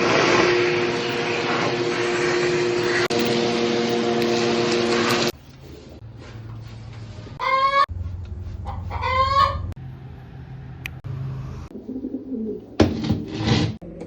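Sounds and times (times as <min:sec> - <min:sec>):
pigeons cooing: 0:11.7 - 0:12.8.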